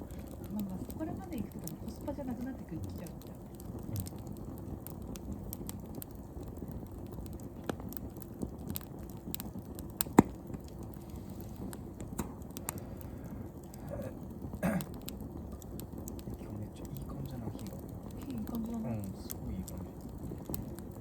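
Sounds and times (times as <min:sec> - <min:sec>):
low rumble of burning: 0:00.0 - 0:21.0
wood fire crackling: 0:00.0 - 0:21.0
sharp pops: 0:09.4 - 0:12.9.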